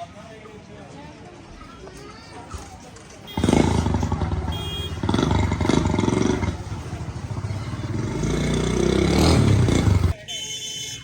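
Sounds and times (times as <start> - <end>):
vehicle engine running: 3.4 - 10.2.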